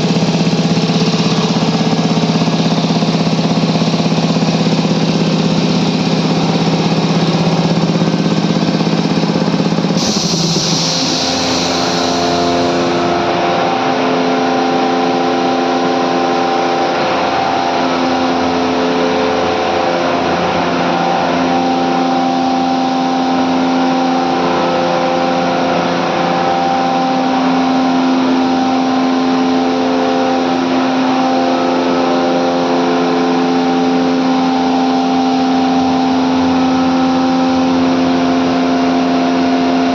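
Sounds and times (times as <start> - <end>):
air compressors humming: 0.0 - 13.5
air hiss: 8.0 - 13.2.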